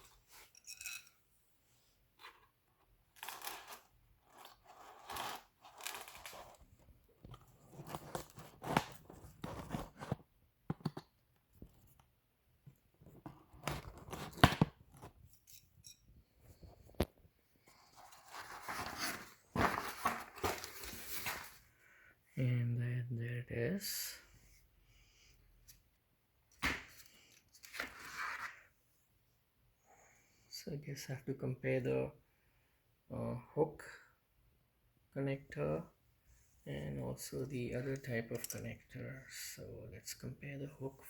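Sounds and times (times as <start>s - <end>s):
packaging rustling and scraping: 3.1s - 10.2s, 17.7s - 21.6s.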